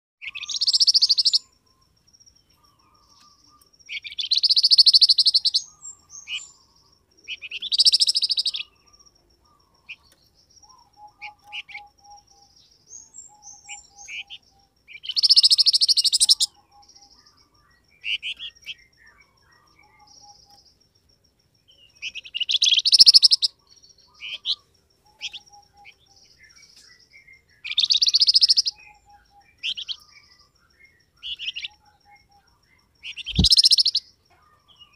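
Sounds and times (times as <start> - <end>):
bird harsh chattering: 0.2 - 1.4, 15.0 - 16.5, 22.0 - 23.5, 27.7 - 28.9, 33.0 - 34.0
bird high trills and whistles: 0.2 - 1.6, 3.0 - 6.7, 7.3 - 8.8, 9.6 - 17.1, 21.8 - 32.4, 33.0 - 34.1.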